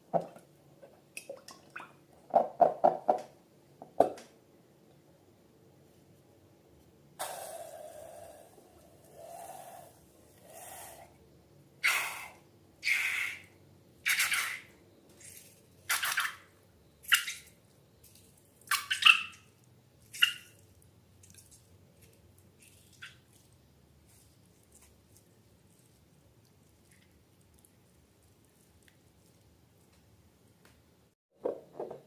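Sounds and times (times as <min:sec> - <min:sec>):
wet slime squelching: 0:17.0 - 0:30.1.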